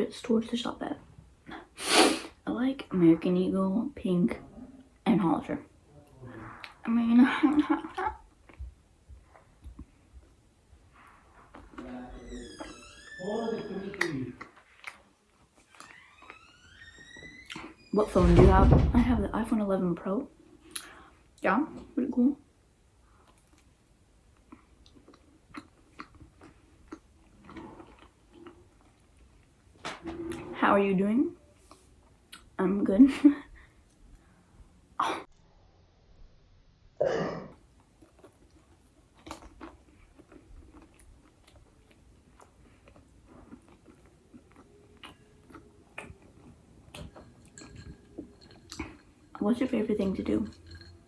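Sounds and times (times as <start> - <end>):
faint chewing: 7.5 - 12.7, 13.9 - 16.4, 23.0 - 30.4, 31.5 - 32.6, 37.5 - 51.0.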